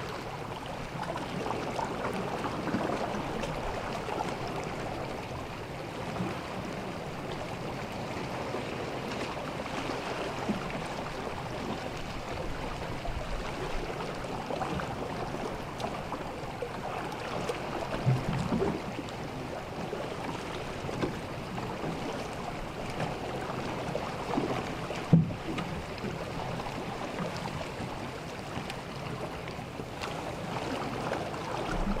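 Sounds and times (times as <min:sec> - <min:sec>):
sea water lapping on shore: 0:00.0 - 0:32.0.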